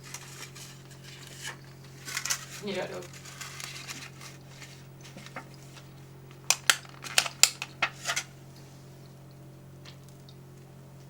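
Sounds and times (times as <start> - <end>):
steady low hum: 0.0 - 11.0
snack packaging clicks and taps: 6.3 - 8.0.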